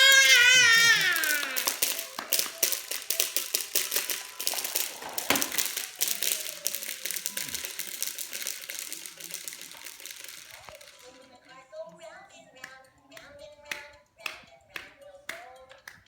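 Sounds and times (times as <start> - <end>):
plastic toy clicking and clacking: 0.0 - 11.5.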